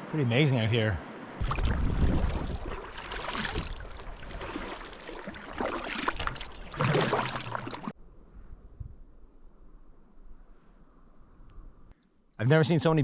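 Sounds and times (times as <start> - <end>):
water splashing around kayak: 1.4 - 7.9.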